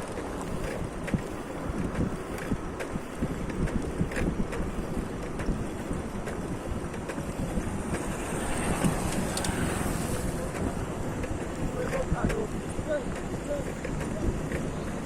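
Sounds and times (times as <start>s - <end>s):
moving vehicle rumble: 0.0s - 15.0s
wind buffeting microphone: 0.0s - 15.0s
small clicks: 8.8s - 9.6s.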